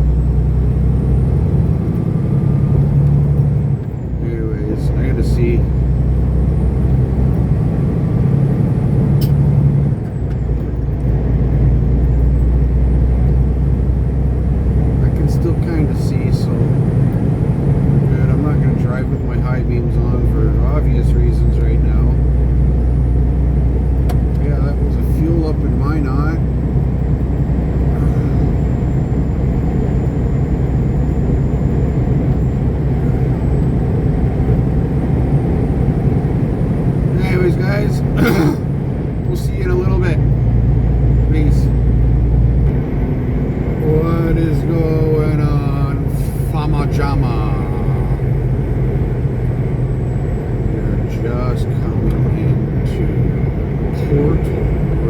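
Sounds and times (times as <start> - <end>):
truck diesel engine droning: 0.0 - 55.0.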